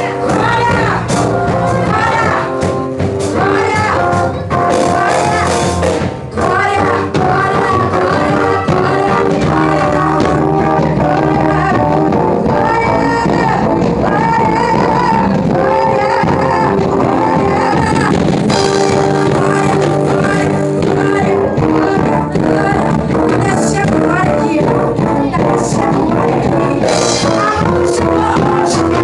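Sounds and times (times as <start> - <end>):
amplified band playing gospel: 0.0 - 29.0
person singing: 0.0 - 29.0.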